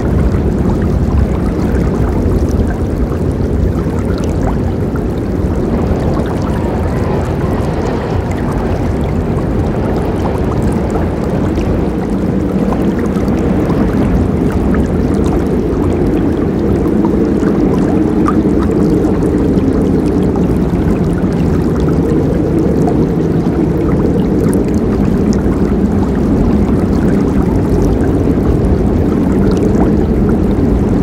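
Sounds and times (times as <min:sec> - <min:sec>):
river flowing: 0:00.0 - 0:19.3.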